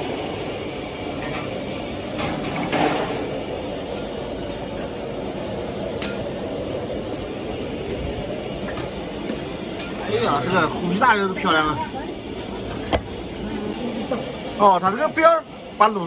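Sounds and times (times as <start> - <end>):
dishes clinking: 2.2 - 3.3.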